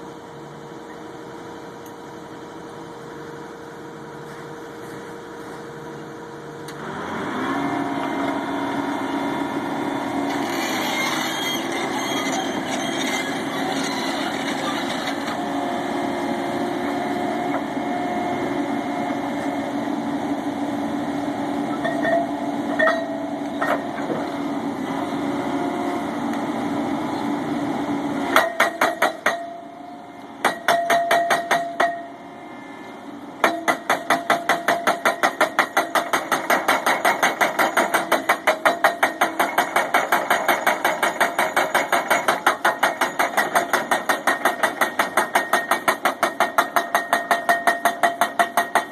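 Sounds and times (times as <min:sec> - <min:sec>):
engine running: 0:00.0 - 0:30.4
rock hammer pounding steel pipe: 0:28.4 - 0:29.6, 0:30.4 - 0:32.1, 0:33.4 - 0:48.9.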